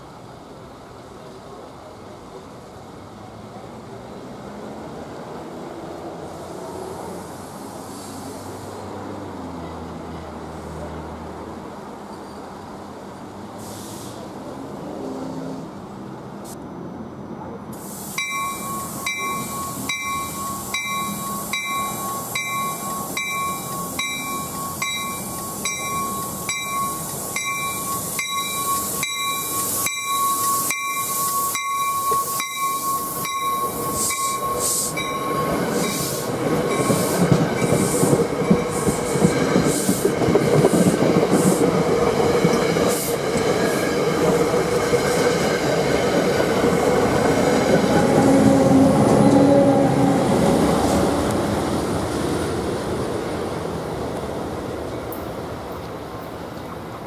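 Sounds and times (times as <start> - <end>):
train rumbling past: 0.0 - 57.0
bell ringing: 18.2 - 36.1.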